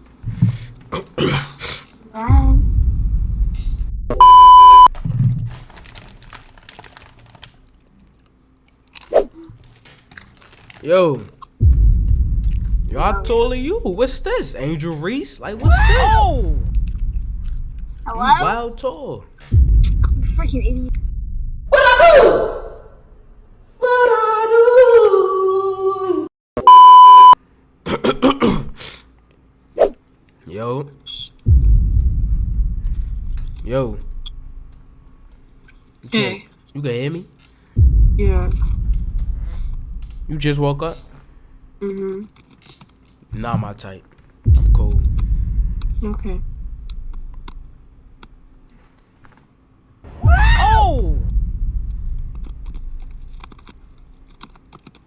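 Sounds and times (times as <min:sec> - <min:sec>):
low rumbling noise: 0:02.1 - 0:07.6, 0:11.5 - 0:23.8, 0:31.4 - 0:35.7, 0:37.8 - 0:41.8, 0:44.4 - 0:48.7, 0:50.0 - 0:54.6
censor bleep: 0:04.1 - 0:04.9, 0:26.6 - 0:27.4
loud electronic beep: 0:04.1 - 0:04.9, 0:26.6 - 0:27.4.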